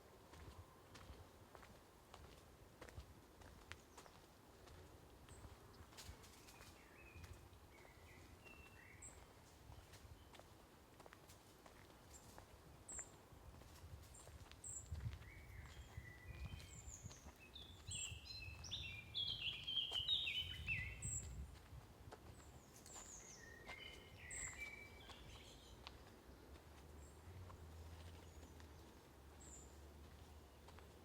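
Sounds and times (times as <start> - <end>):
songbird song of descending notes: 6.3 - 10.5, 14.2 - 21.4, 22.4 - 26.1.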